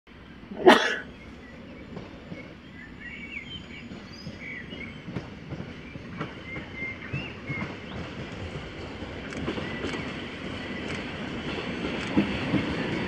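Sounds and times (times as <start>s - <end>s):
distant electric train rumbling: 0.1s - 13.0s
birds chirping: 0.2s - 8.4s.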